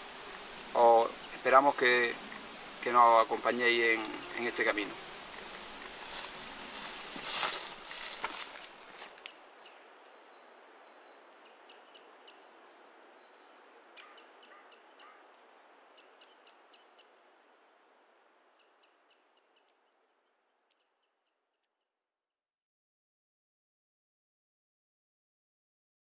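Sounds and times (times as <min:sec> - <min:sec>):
steady hiss: 0:00.0 - 0:09.4
small birds chirping: 0:00.0 - 0:15.4.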